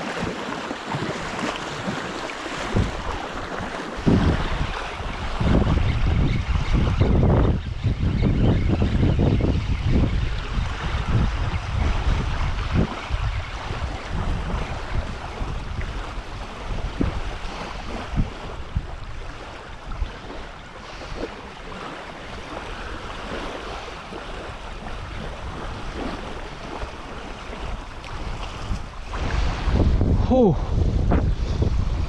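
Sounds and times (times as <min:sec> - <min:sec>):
small waves lapping at shore: 0:00.0 - 0:05.9, 0:10.2 - 0:29.8
wind buffeting microphone: 0:00.0 - 0:32.0.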